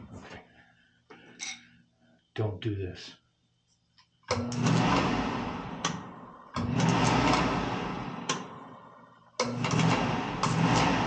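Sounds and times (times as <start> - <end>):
oil burner motor running: 4.3 - 11.0.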